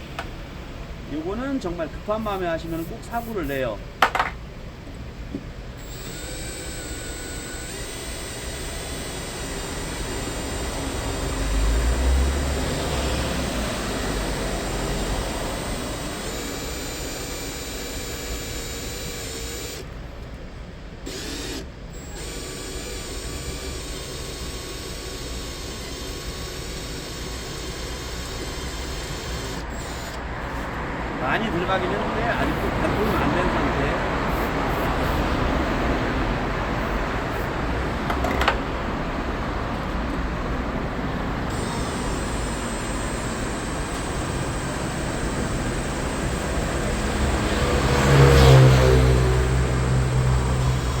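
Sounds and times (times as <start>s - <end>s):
electric drill boring into steel: 5.8s - 20.0s, 21.0s - 30.4s, 31.2s - 35.3s, 41.3s - 51.0s.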